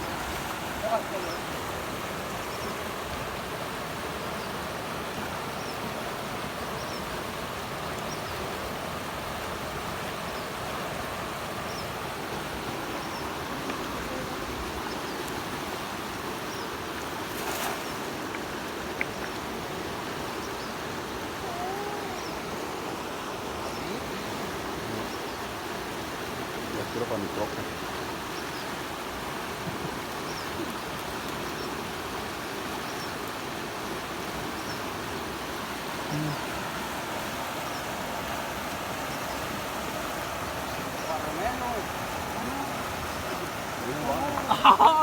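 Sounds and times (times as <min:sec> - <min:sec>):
river water rushing: 0:00.0 - 0:45.0.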